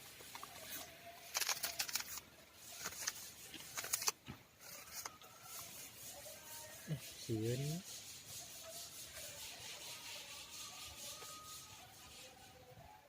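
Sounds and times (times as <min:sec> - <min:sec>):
beak crackling clicks: 0:01.2 - 0:02.2
faint thin whistling: 0:07.6 - 0:13.0.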